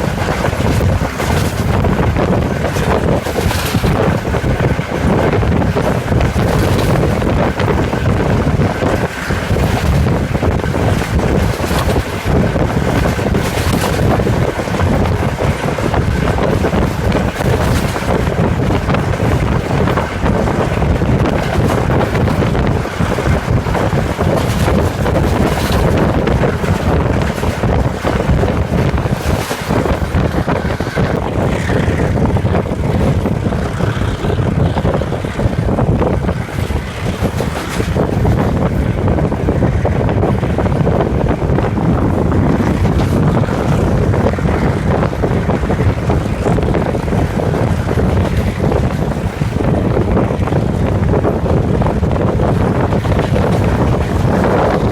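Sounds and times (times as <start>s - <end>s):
diesel locomotive engine running: 0.0s - 54.9s
wind buffeting microphone: 0.0s - 54.9s.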